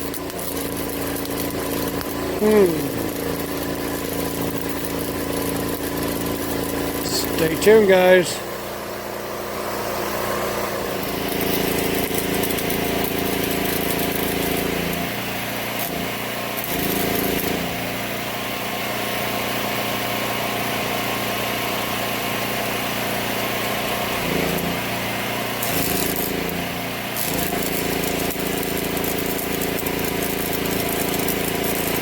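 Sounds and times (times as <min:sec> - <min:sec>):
angle grinder grinding steel: 0:00.0 - 0:08.6, 0:10.4 - 0:17.9, 0:24.0 - 0:32.0.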